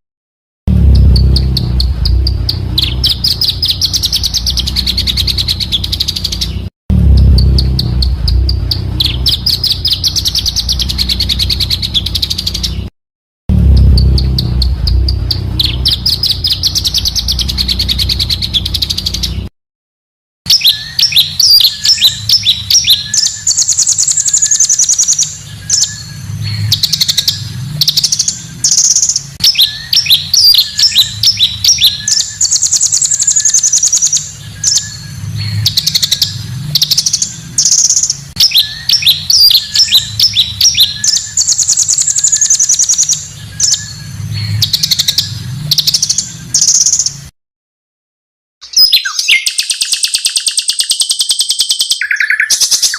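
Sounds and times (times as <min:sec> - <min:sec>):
low hum: 0:00.7 - 0:12.9, 0:13.5 - 0:19.5
songbird trill: 0:00.7 - 0:12.9, 0:13.5 - 0:19.5, 0:20.5 - 0:47.3, 0:48.6 - 0:52.9
harsh bird chattering: 0:00.8 - 0:12.9, 0:13.7 - 0:19.4, 0:20.5 - 0:47.2
whistled bird phrases: 0:20.5 - 0:47.2, 0:48.6 - 0:52.9.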